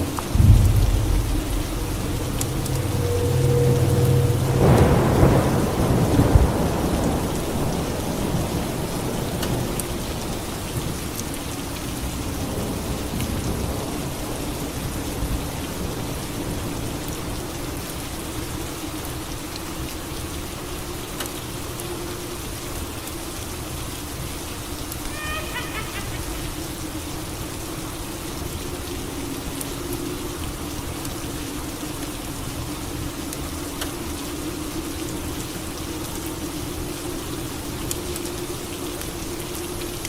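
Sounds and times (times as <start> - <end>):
thunder rumbling: 0.0 - 9.6
steady rain: 0.0 - 40.0.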